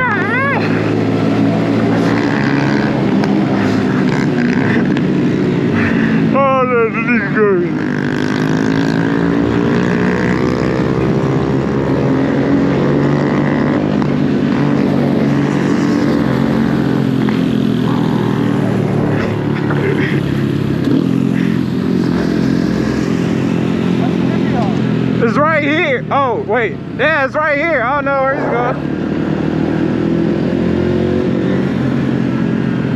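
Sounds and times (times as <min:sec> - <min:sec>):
mini bike engine running: 0:14.9 - 0:22.8.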